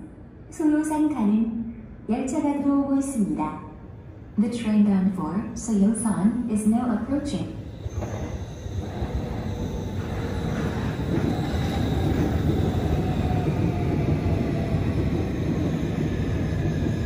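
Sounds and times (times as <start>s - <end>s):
train rumble: 6.2s - 17.0s.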